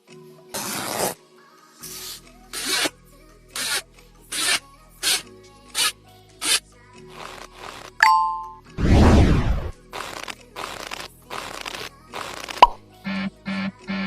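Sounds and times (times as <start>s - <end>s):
quiet background music: 0.0s - 14.0s.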